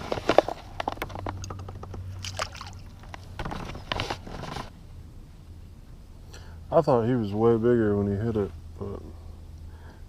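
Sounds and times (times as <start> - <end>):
steady low hum: 0.0 - 10.0
water splashing: 1.4 - 3.4.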